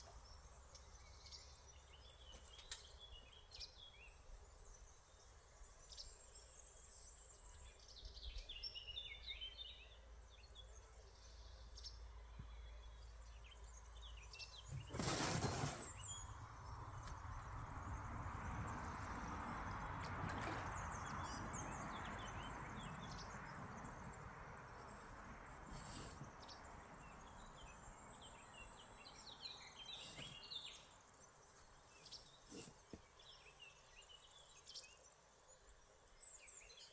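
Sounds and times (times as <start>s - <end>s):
birds chirping: 19.5s - 36.9s.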